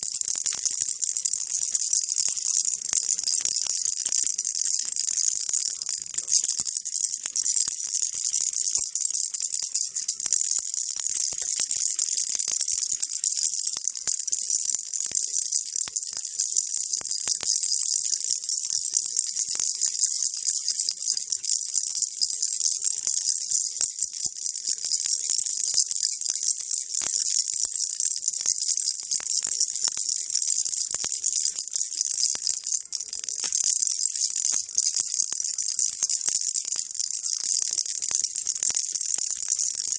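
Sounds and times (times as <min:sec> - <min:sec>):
baby rattle shaking: 0:00.0 - 0:39.9.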